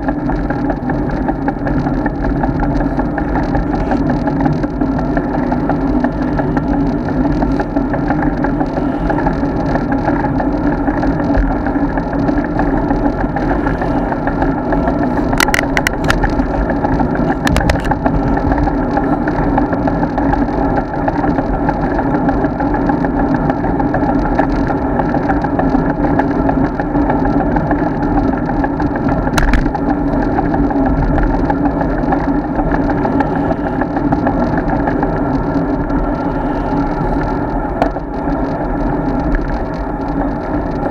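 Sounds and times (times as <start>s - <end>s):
bike road rumble: 0.0s - 40.9s
wind: 0.0s - 40.9s
sharp clicks or knocks: 29.4s - 29.7s.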